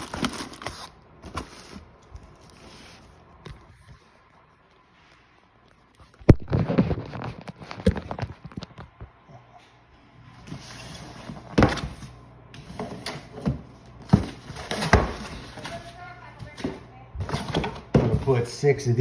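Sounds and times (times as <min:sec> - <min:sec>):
handling knocks and rustles: 0:10.4 - 0:18.5.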